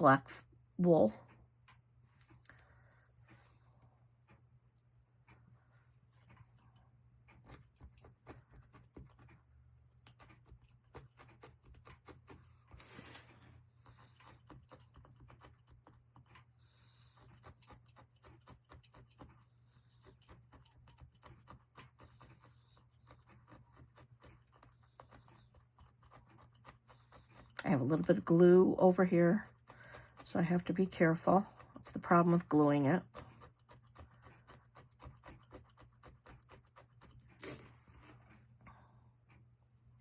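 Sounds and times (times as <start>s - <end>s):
felting needle poking foam: 7.2s - 37.7s.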